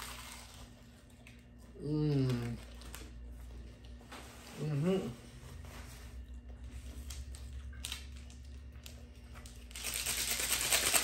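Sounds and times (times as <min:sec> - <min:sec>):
plastic packet crinkling: 0:07.0 - 0:11.0.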